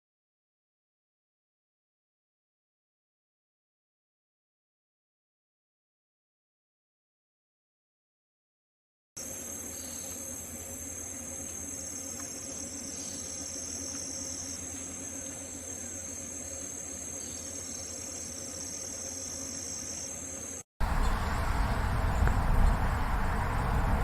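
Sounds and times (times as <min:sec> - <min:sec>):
insects trilling: 0:09.2 - 0:22.9.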